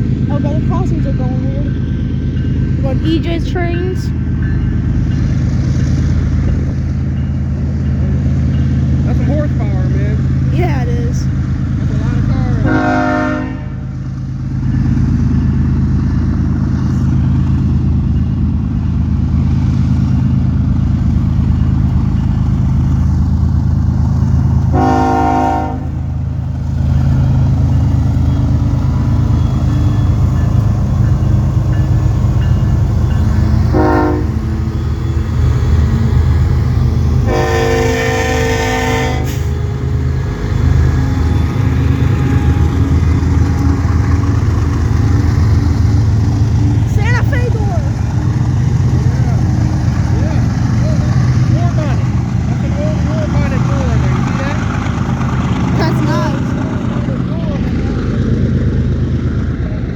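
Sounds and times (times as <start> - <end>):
locomotive engine rumble: 0.0 - 59.9
locomotive air horn blasts: 12.6 - 13.8, 24.7 - 26.0, 33.7 - 34.4, 37.2 - 39.8.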